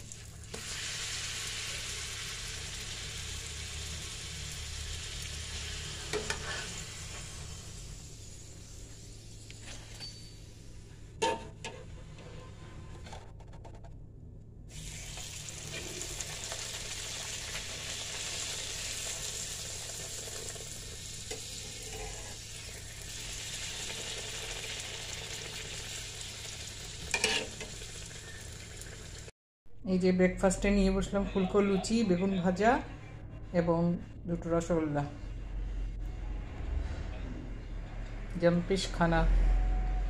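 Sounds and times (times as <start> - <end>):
food sizzling in oil: 0.0 - 9.5, 14.7 - 29.3.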